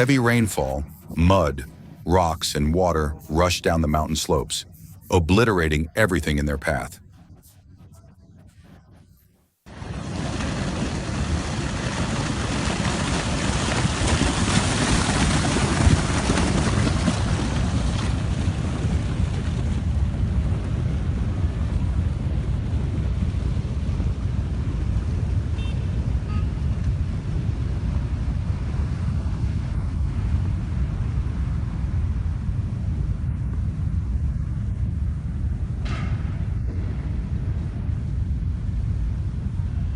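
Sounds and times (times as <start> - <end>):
mudflow rushing down a slope: 9.7 - 25.5.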